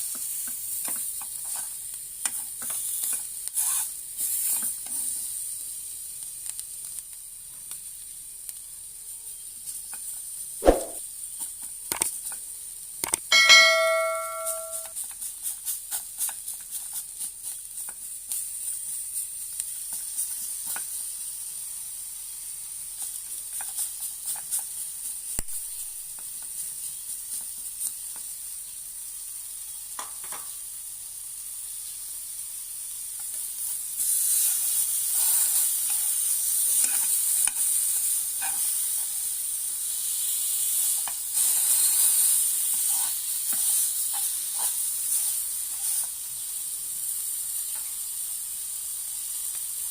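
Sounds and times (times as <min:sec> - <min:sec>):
ribs sizzling in a pan: 0:00.0 - 0:13.3, 0:14.8 - 0:49.9
utensil clicking against pan: 0:11.9 - 0:12.4, 0:13.0 - 0:13.3.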